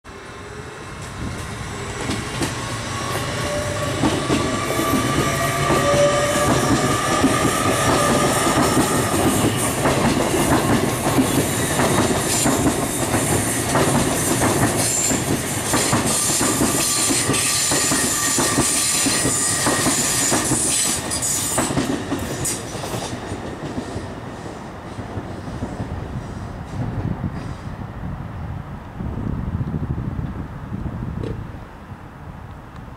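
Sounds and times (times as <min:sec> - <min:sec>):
train wheels clicking over rail joints: 0:01.0 - 0:26.0.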